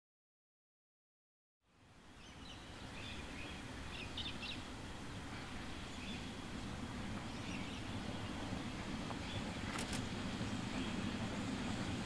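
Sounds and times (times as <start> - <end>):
low outdoor rumble: 1.7 - 12.0
small birds chirping: 2.1 - 11.5.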